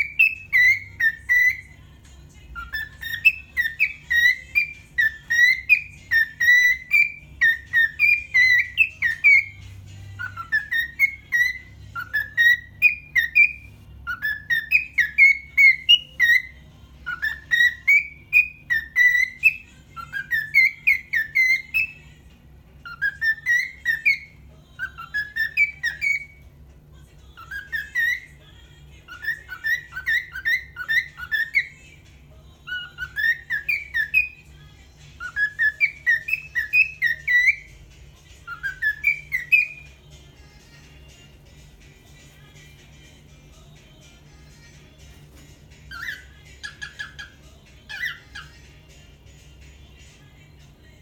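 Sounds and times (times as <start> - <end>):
cockatiel whistling: 0.0 - 1.8, 2.6 - 22.0, 22.8 - 26.5, 27.4 - 28.5, 29.1 - 31.9, 32.7 - 34.4, 35.2 - 37.7, 38.3 - 40.0, 45.9 - 48.7.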